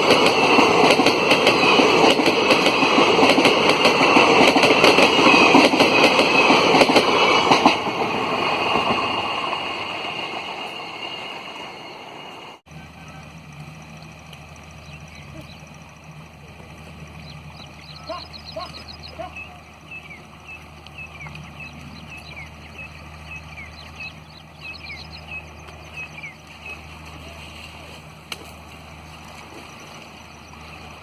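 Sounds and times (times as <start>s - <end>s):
birds chirping: 8.4s - 27.8s, 28.5s - 31.0s.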